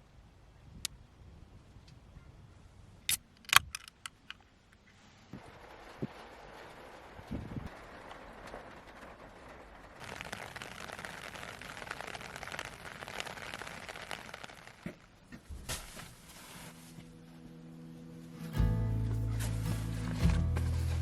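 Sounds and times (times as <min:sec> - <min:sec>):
rain falling: 0:05.0 - 0:15.2, 0:18.3 - 0:21.0.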